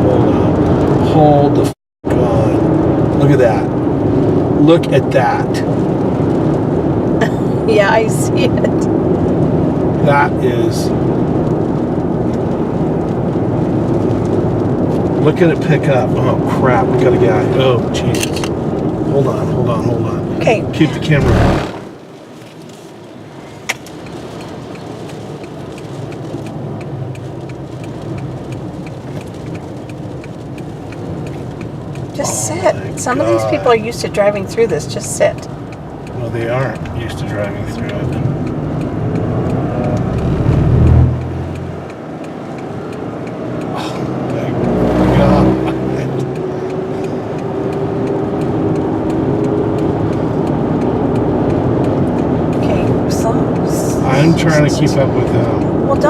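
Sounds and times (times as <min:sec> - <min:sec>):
road and wind noise inside car: 0:00.0 - 0:56.0
strong wind: 0:20.1 - 0:22.2
light ticking: 0:23.6 - 0:56.0.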